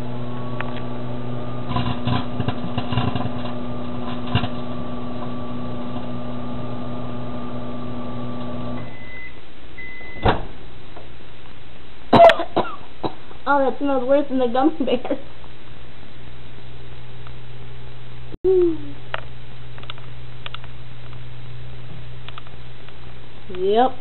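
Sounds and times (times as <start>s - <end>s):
microwave oven humming: 0.0s - 10.8s
microwave beeps: 8.7s - 10.3s
cd crackling and snapping: 19.7s - 21.2s.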